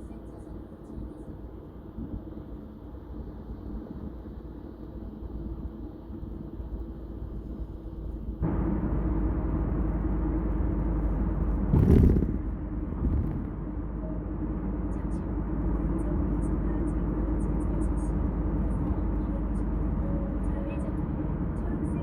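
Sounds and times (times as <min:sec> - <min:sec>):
road and engine rumble: 0:00.0 - 0:22.0
loud whoosh: 0:11.6 - 0:13.6.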